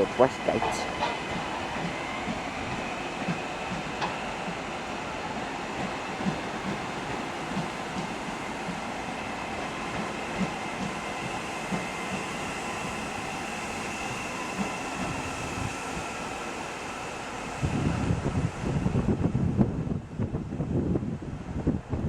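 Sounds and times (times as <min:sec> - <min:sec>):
electric train running with whine: 0:00.0 - 0:20.7
train wheels knocking over rail joints: 0:00.6 - 0:04.2.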